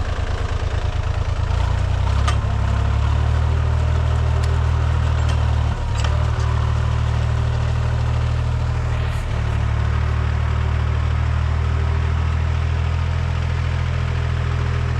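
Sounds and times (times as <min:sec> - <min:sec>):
tractor diesel engine droning: 0:00.0 - 0:14.9.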